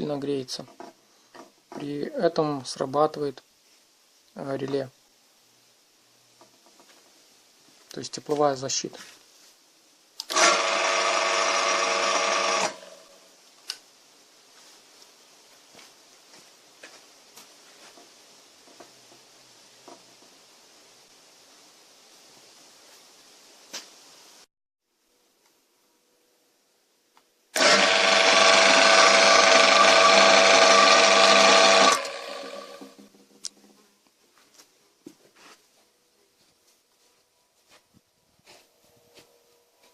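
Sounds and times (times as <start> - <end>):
electric motor humming: 10.3 - 13.0, 27.6 - 33.0.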